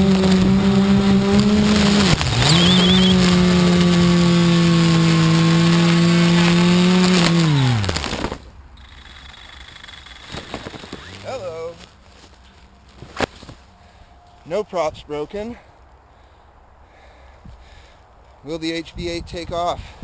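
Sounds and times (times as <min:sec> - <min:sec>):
drone propellers humming: 0:00.0 - 0:11.6.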